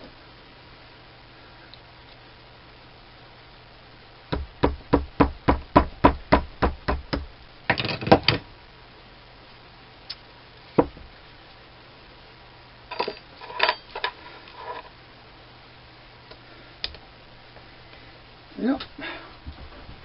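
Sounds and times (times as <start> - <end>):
metallic clatter: 12.9 - 14.9.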